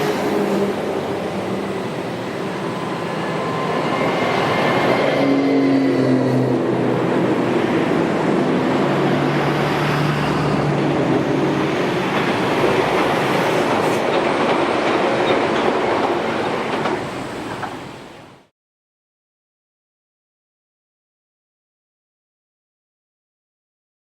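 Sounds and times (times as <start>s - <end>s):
electric train wheels clattering: 10.4s - 18.2s.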